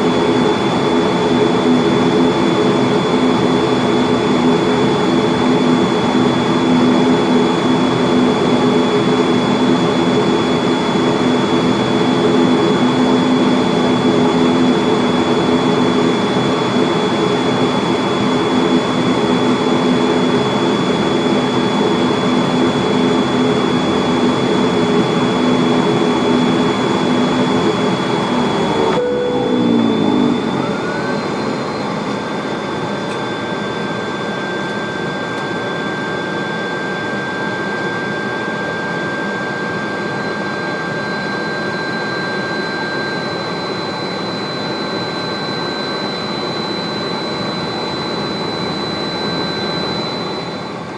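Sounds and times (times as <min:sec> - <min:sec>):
turboprop engines idling: 0:00.0 - 0:50.9
engine winding down: 0:25.8 - 0:50.9.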